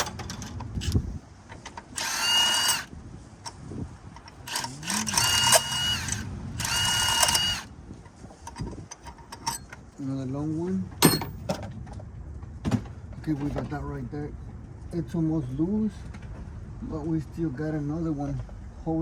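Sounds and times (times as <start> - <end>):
power tool motor whine: 1.9 - 2.9, 4.4 - 7.7.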